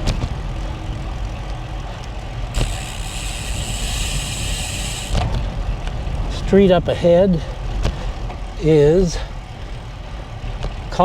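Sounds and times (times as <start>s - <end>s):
wind rumble on microphone: 0.0s - 11.0s
steady high buzz: 2.5s - 5.7s.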